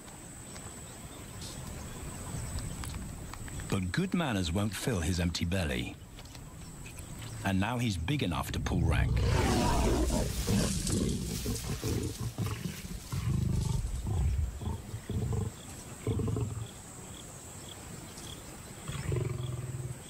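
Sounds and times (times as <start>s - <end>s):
faint insect chirping: 0.0s - 20.0s
lions growling and snarling: 8.6s - 16.8s, 18.8s - 20.0s.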